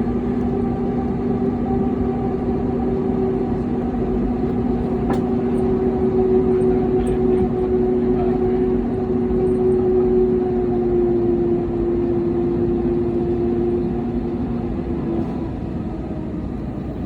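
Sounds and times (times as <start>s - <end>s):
jet engines in cabin: 0.0s - 17.0s.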